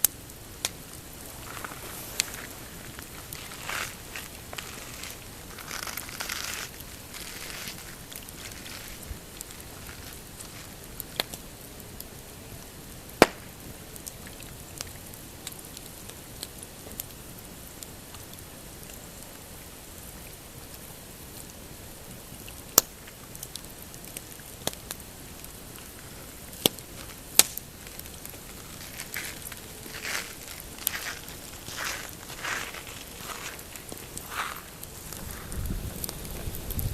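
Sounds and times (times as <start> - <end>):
campfire crackling and popping: 0.0 - 36.9
soft swishing: 1.2 - 10.6.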